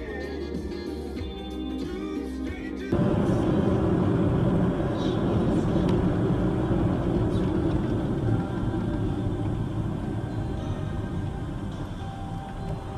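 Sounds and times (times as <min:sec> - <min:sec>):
vehicle driving rumble: 0:03.0 - 0:12.9.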